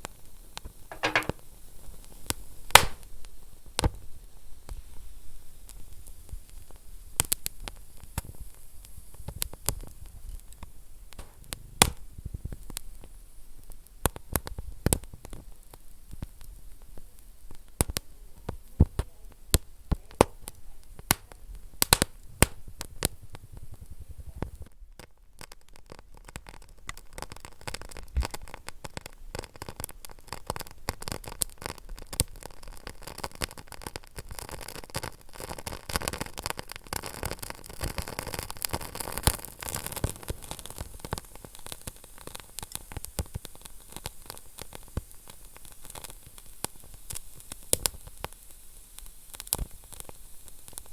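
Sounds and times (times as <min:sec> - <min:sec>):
hiss of burning: 0:00.0 - 0:24.8, 0:25.4 - 0:50.9
fire popping: 0:00.0 - 0:50.9
wood fire crackling: 0:00.0 - 0:50.9.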